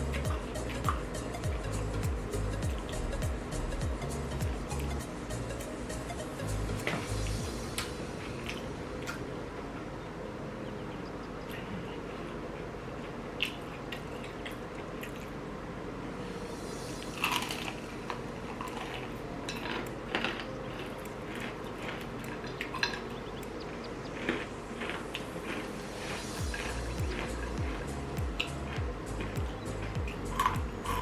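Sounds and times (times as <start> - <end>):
steady low hum: 0.0 - 31.0
chewing crunches: 18.5 - 31.0
wet mouth sounds: 24.2 - 31.0.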